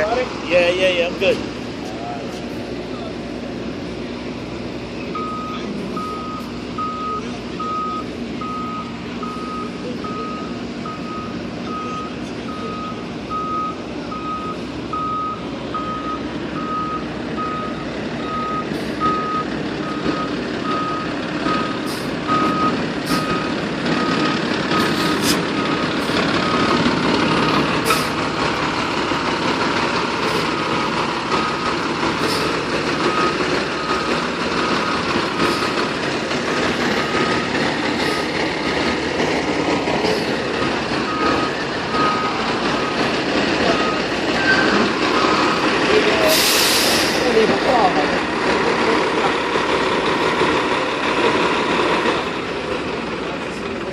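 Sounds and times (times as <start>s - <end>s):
truck engine running: 0.0s - 53.9s
reverse alarm beeping: 5.1s - 24.2s, 33.1s - 34.1s, 37.0s - 37.5s, 41.1s - 45.6s.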